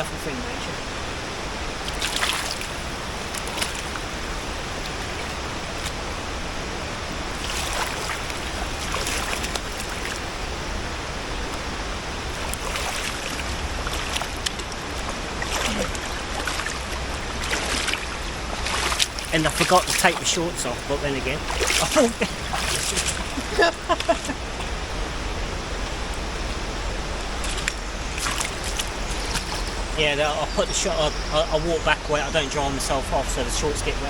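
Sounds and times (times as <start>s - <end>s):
river water rushing: 0.0s - 34.0s
short splashes: 1.8s - 6.1s, 7.3s - 10.6s, 12.3s - 24.8s, 27.3s - 30.1s.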